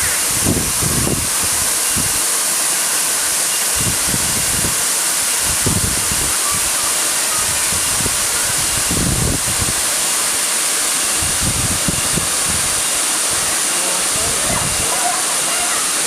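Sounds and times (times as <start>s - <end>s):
waterfall hiss: 0.0s - 16.0s.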